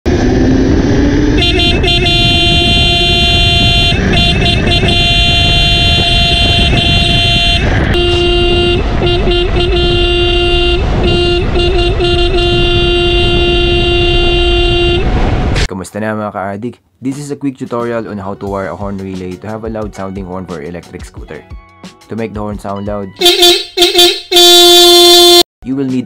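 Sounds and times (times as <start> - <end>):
wind and road rumble: 0.0 - 15.7
scooter horn honking: 1.4 - 15.1, 23.2 - 25.4.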